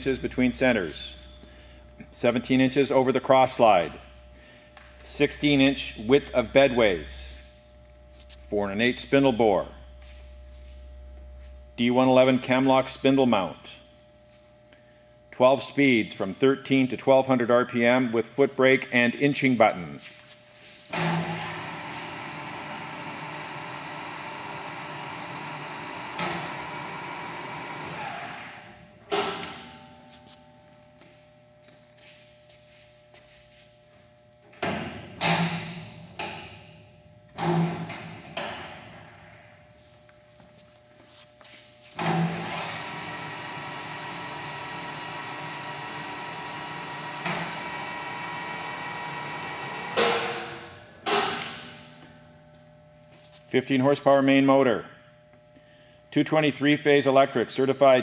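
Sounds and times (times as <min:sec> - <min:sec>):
lathe humming and whining: 0:20.3 - 0:29.2, 0:37.4 - 0:50.4
sharp clunk: 0:50.0 - 0:51.6.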